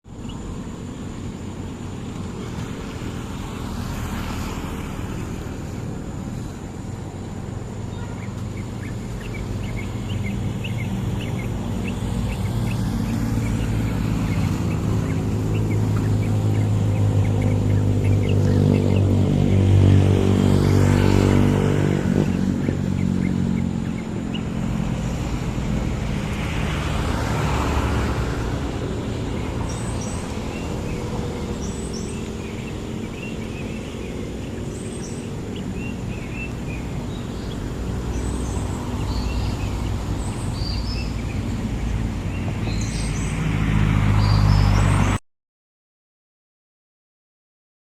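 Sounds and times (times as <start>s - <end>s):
small birds chirping: 0.1s - 45.2s
vehicle engine running: 5.6s - 43.3s.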